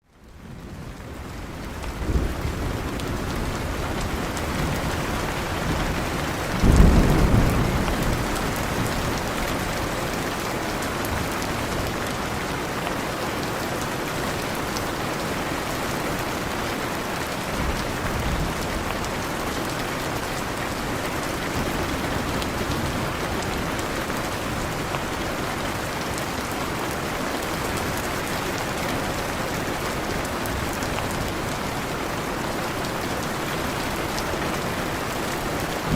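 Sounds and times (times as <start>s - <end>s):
heavy rain falling: 0.1s - 35.9s
faint rumble of thunder: 0.5s - 10.4s
thunder clap: 5.7s - 9.9s.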